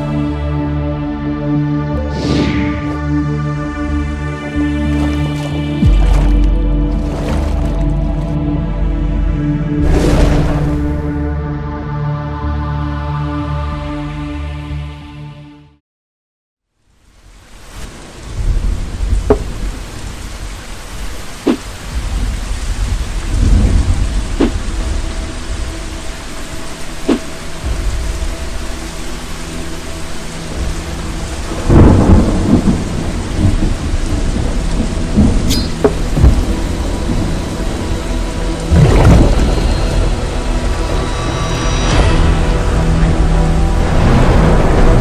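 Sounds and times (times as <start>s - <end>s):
heavy rain: 0.0s - 11.1s, 16.7s - 45.0s
thunder: 31.3s - 37.5s, 38.6s - 40.2s.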